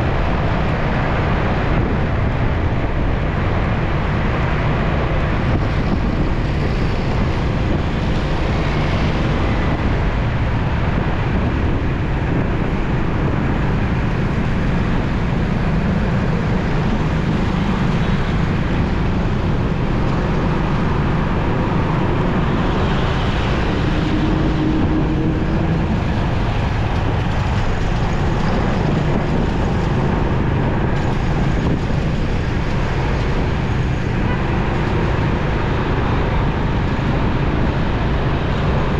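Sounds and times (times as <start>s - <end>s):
surrounding traffic: 0.0s - 38.9s
wind and road noise: 0.0s - 38.9s.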